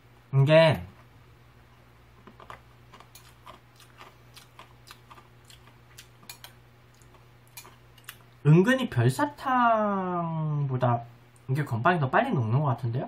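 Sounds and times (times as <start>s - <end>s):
person chewing soggy cereal: 2.2s - 8.4s.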